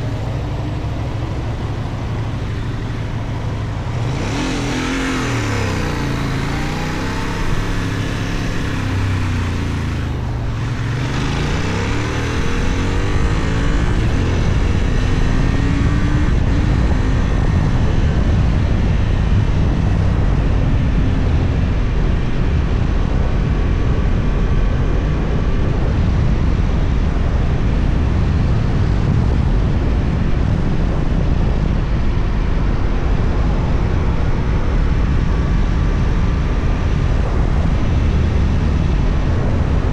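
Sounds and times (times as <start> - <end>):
motorcycle engine revving: 0.0 - 22.5
wind rushing on microphone: 0.0 - 39.9.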